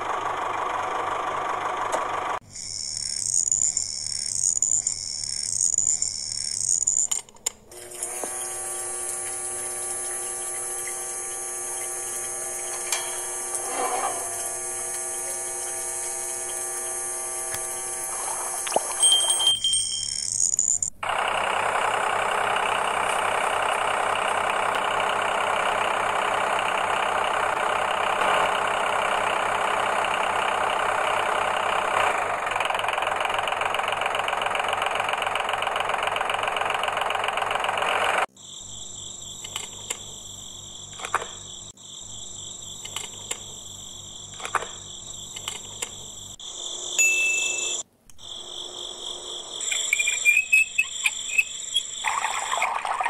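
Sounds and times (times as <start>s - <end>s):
small motor running: 7.7s - 19.0s
scattered clicks: 39.4s - 40.1s, 40.9s - 41.4s, 42.8s - 43.5s, 44.3s - 46.0s.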